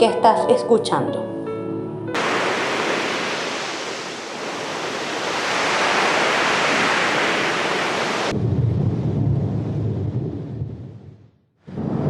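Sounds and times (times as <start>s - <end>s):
waves breaking: 2.2s - 8.4s
low rumble: 8.3s - 12.0s.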